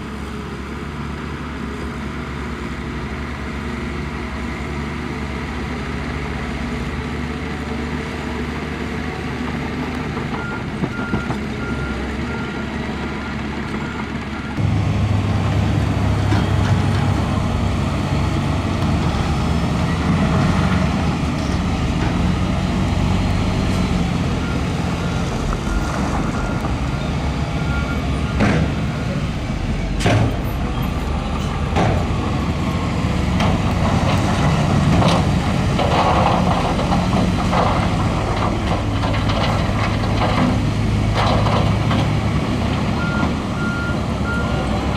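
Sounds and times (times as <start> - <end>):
diesel construction machinery running: 0.0 - 44.9
reversing alarm beeping: 24.4 - 28.5, 43.0 - 44.6.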